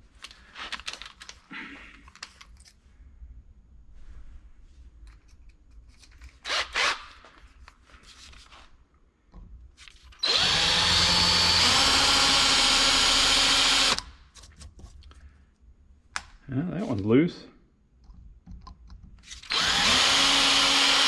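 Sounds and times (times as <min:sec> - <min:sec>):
electric drill drilling metal: 0:10.2 - 0:14.1, 0:19.4 - 0:21.0.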